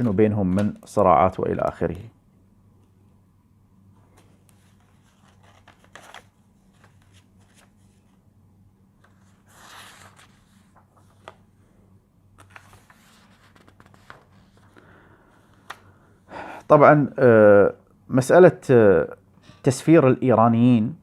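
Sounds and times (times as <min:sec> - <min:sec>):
steady low hum: 0:00.0 - 0:21.0
book pages rustling: 0:04.0 - 0:08.2, 0:09.0 - 0:11.5, 0:12.4 - 0:14.8.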